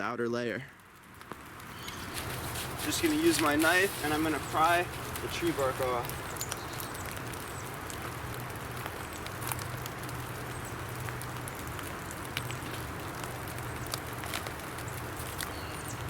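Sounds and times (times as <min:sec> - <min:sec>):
rain falling in woodland: 0:00.8 - 0:16.0
sharp ticks and clicks: 0:00.8 - 0:16.0.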